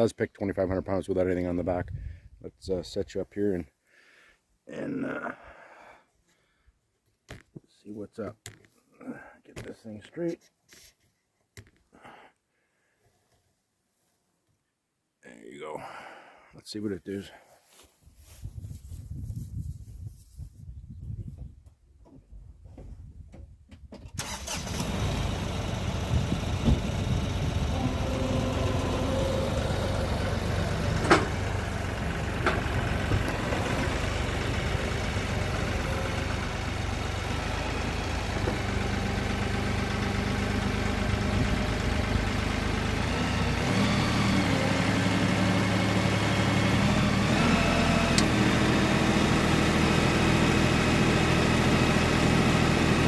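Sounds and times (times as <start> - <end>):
tractor diesel engine revving: 24.1 - 53.0.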